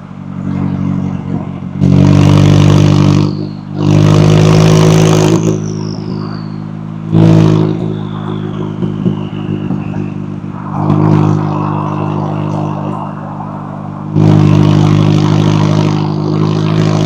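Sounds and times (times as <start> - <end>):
sports car engine revving: 0.0 - 17.0.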